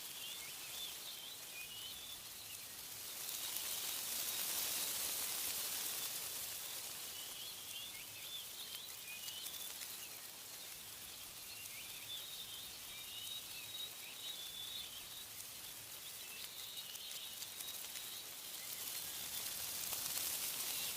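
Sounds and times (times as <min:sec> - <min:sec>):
wind blowing through trees: 0:00.0 - 0:20.9
birds chirping: 0:05.8 - 0:20.9.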